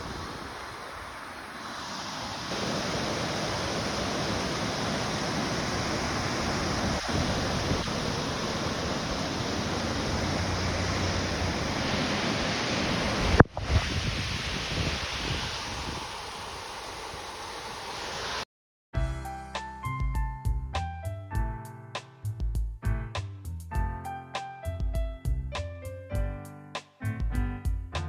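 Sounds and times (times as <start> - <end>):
river water rushing over rocks: 0.0 - 18.4.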